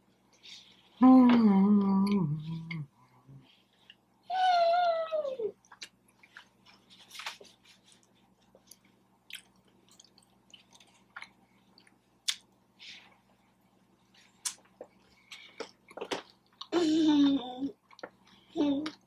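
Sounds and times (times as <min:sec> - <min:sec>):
person chewing food: 0:05.6 - 0:16.8, 0:17.8 - 0:19.0.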